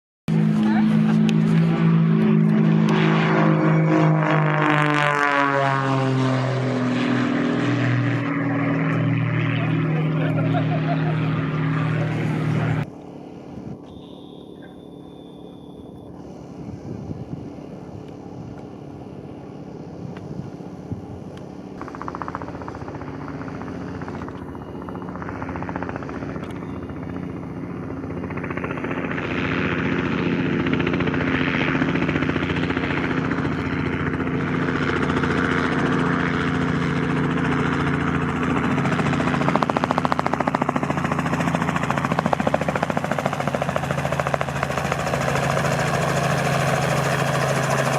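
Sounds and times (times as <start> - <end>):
aircraft engine drone: 0.3 - 47.9.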